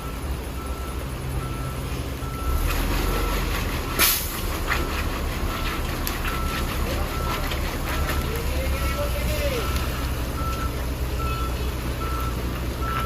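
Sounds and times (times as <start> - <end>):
diesel engine rumble: 0.0 - 13.0
truck reversing alarm beeping: 0.0 - 13.0
short sharp hiss: 4.0 - 4.3.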